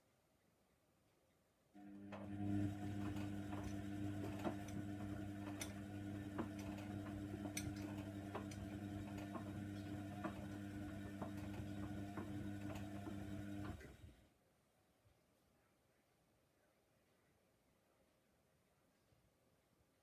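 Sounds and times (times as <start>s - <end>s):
washer drum motor humming: 1.8s - 14.1s.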